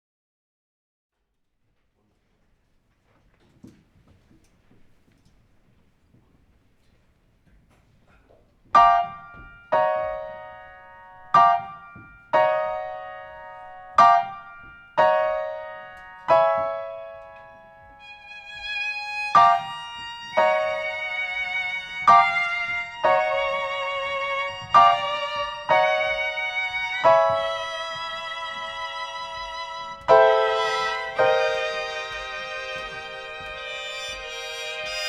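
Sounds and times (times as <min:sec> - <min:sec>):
piano chords: 0:08.7 - 0:35.0
bowed strings: 0:16.4 - 0:35.0.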